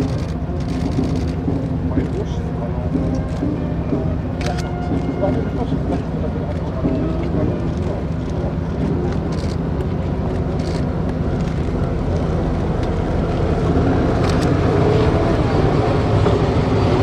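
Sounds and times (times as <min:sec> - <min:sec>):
vehicle engines driving past: 0:07.7 - 0:17.0.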